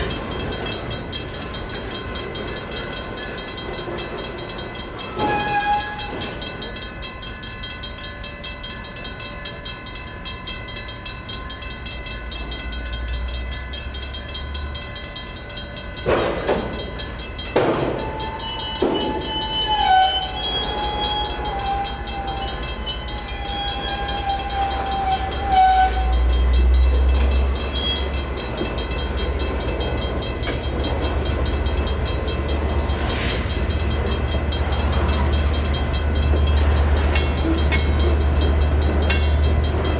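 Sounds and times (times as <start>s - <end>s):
freight train cars clanking: 0.0s - 39.9s
high wheel squeal: 0.8s - 6.4s, 17.6s - 39.3s.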